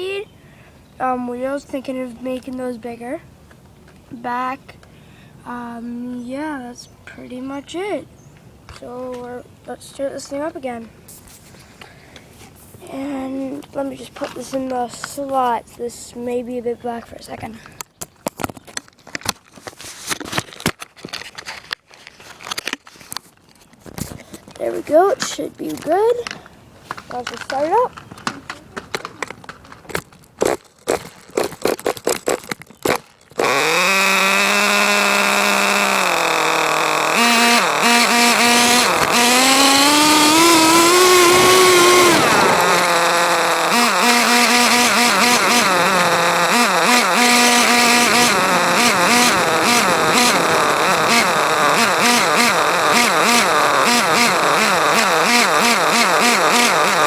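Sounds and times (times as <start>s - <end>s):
pull starter being yanked: 29.8s - 57.0s
small engine buzzing and revving: 30.4s - 57.0s.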